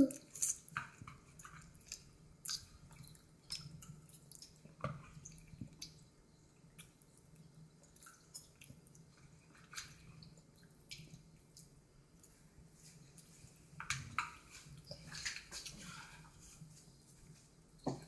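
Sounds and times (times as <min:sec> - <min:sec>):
person eating smacking: 0:00.0 - 0:06.0.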